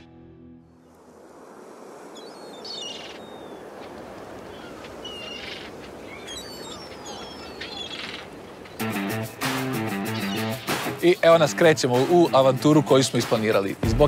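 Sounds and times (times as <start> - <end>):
small birds chirping: 2.1 - 9.1, 9.8 - 11.4.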